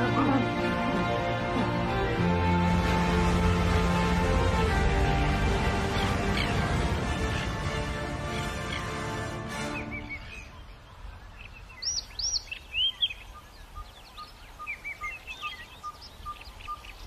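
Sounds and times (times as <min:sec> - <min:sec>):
background music: 0:00.0 - 0:10.7
wild birds calling: 0:00.0 - 0:17.0.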